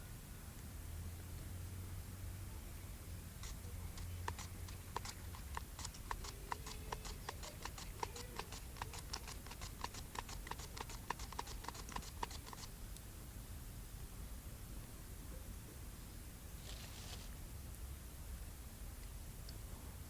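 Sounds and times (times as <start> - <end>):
knife chopping food: 3.4 - 12.7.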